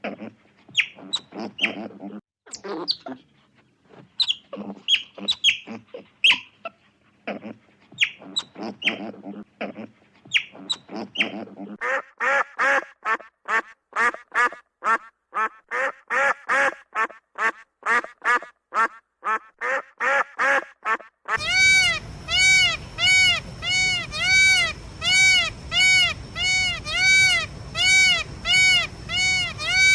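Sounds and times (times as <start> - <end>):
ducks quacking: 11.8 - 29.9.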